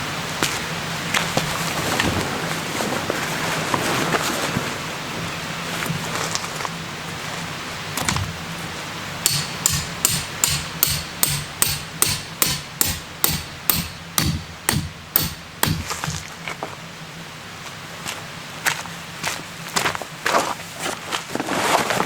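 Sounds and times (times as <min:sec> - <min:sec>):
hammer driving tent peg: 0:09.2 - 0:16.3.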